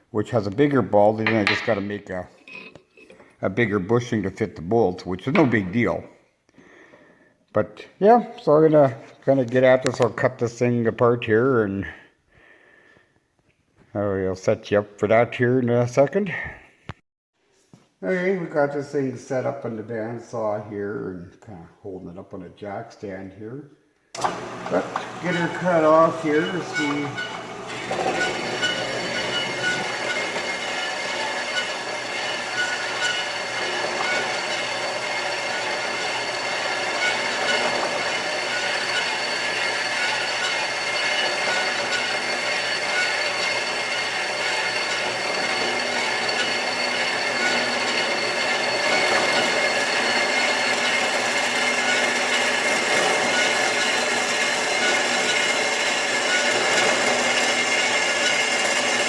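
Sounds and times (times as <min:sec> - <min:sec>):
bandsaw cutting steel: 0:00.4 - 0:02.8, 0:03.6 - 0:06.0, 0:24.2 - 0:59.0.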